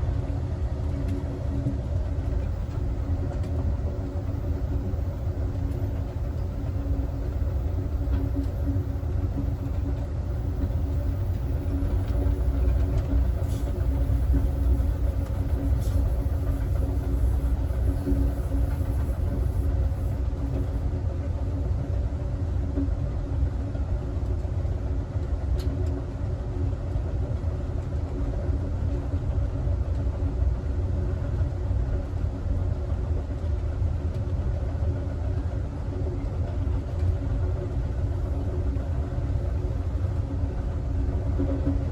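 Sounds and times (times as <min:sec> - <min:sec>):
faint steady hum: 0:00.0 - 0:21.9
train car rumbling on track: 0:00.0 - 0:41.9.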